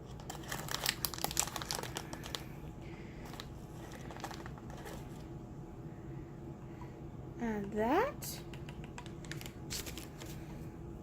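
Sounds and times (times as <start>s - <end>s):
plastic packaging crinkling: 0.0s - 2.6s, 3.2s - 5.3s, 9.0s - 10.5s.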